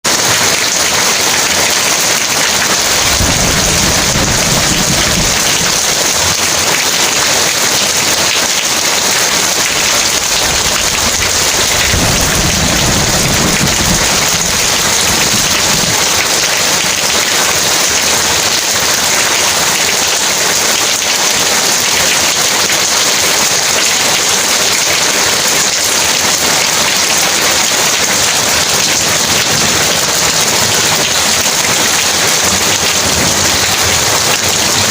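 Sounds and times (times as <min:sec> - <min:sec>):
heavy rain pouring: 0:00.0 - 0:34.9
low rolls of thunder: 0:02.9 - 0:06.4, 0:10.3 - 0:16.0.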